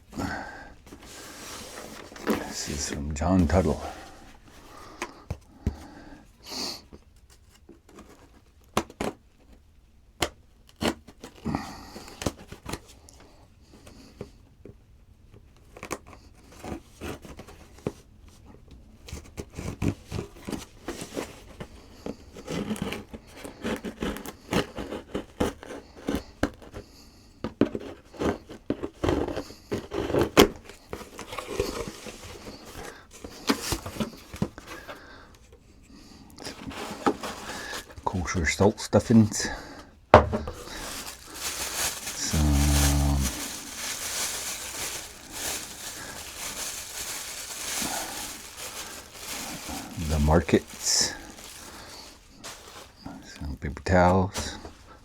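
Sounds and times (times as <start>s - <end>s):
packing paper rustling: 0.0s - 5.9s, 19.0s - 26.9s, 27.5s - 55.0s.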